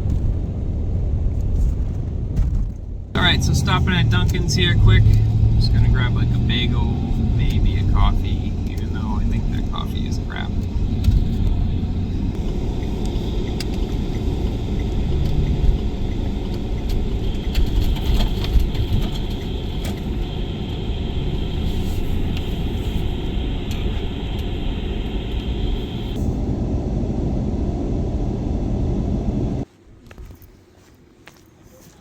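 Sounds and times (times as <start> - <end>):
van engine rumble: 0.0 - 29.7
faint high whine: 3.2 - 14.6, 17.1 - 29.6.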